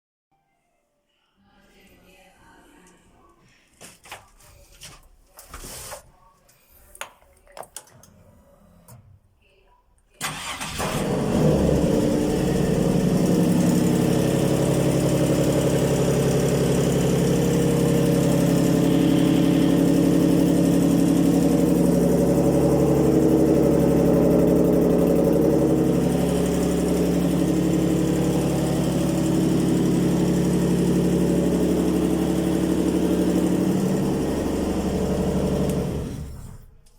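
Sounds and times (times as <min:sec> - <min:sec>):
boat engine idling: 0:12.3 - 0:36.3.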